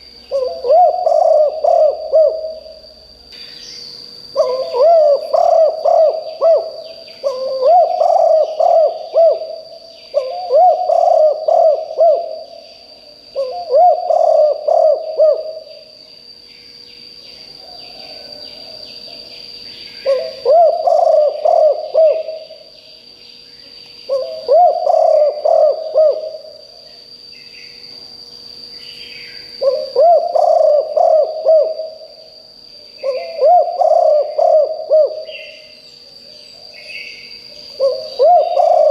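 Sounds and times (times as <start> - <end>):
dove cooing: 0.0 - 2.9, 4.3 - 12.6, 13.3 - 15.9, 20.0 - 22.7, 24.1 - 26.8, 29.6 - 32.2, 33.0 - 35.8, 37.5 - 38.9
faint bird chirps: 0.0 - 38.9
steady high whine: 0.0 - 38.9.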